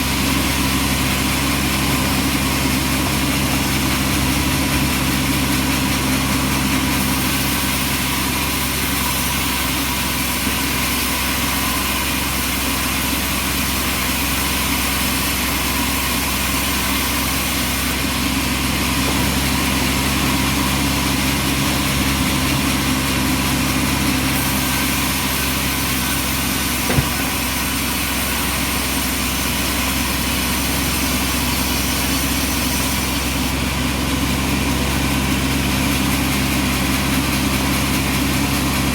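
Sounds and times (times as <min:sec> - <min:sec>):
motor hum: 0:24.7 - 0:28.0.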